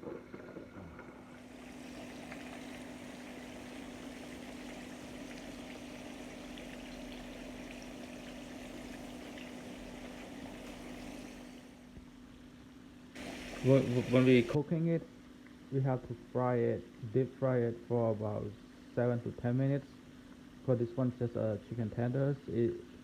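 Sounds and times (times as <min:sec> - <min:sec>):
food deep-frying in oil: 0:00.3 - 0:12.5, 0:13.2 - 0:14.6.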